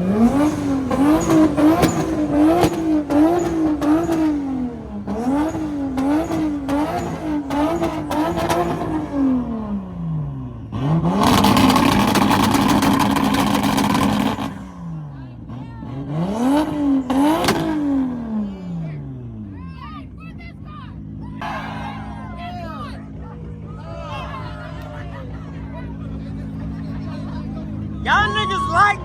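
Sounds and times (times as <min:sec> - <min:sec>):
engine bouncing off rev limiter: 0:00.0 - 0:19.6, 0:21.0 - 0:28.2
car engine revving: 0:00.0 - 0:19.7.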